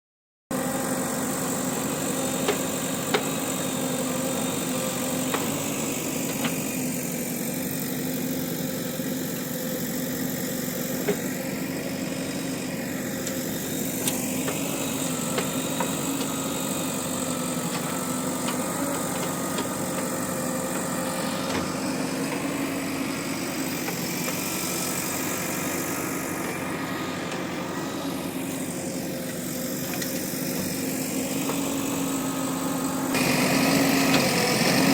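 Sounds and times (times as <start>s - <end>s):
diesel engine running: 0.5s - 34.9s.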